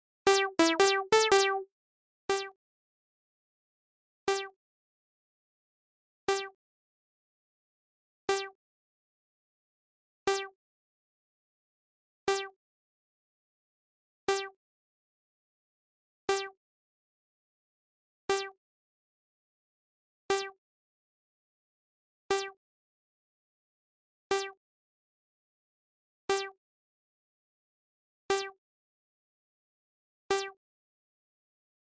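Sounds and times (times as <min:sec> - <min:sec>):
electronic keyboard notes: 0:00.3 - 0:01.6.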